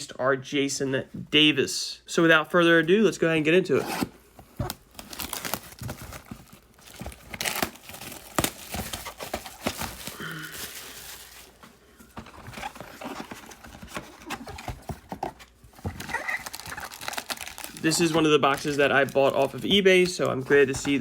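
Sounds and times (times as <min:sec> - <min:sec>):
plastic wrap crinkling and tearing: 0:04.4 - 0:21.0.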